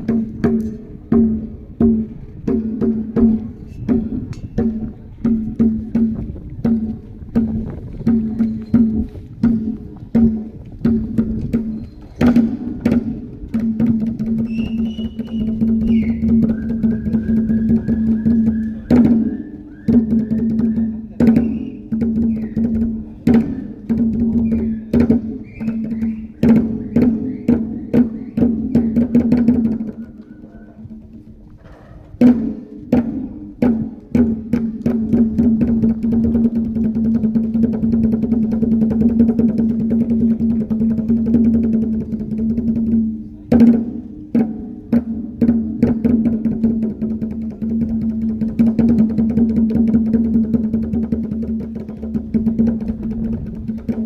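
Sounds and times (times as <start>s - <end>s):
rapid percussion strikes: 0.0s - 31.3s, 32.2s - 54.0s
high whistled calls: 14.4s - 22.6s, 24.4s - 29.1s.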